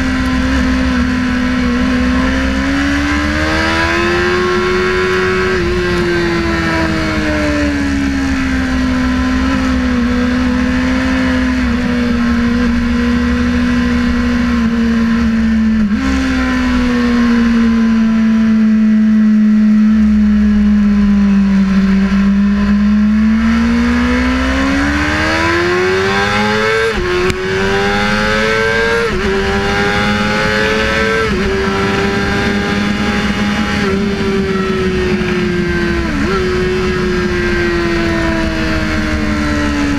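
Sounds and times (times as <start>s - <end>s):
motorcycle engine revving: 0.0s - 39.9s
wind rushing: 27.1s - 39.9s.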